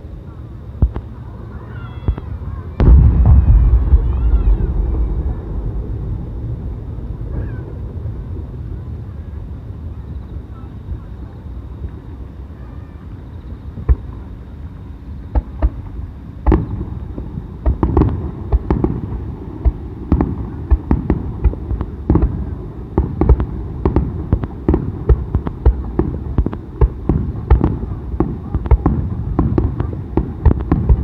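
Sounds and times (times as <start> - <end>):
continuous rumble: 0.0 - 31.0
fireworks bangs: 1.7 - 10.0, 15.3 - 31.0.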